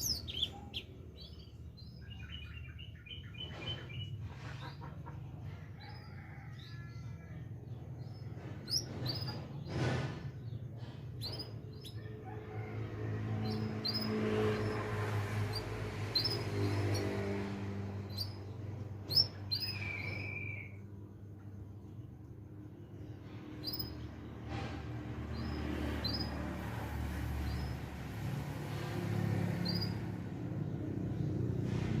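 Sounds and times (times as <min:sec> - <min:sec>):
finch chirping: 0:00.0 - 0:04.1
finch chirping and twittering: 0:00.0 - 0:04.8, 0:08.0 - 0:09.9, 0:13.4 - 0:17.3, 0:18.0 - 0:20.8, 0:23.6 - 0:24.0, 0:29.6 - 0:30.0.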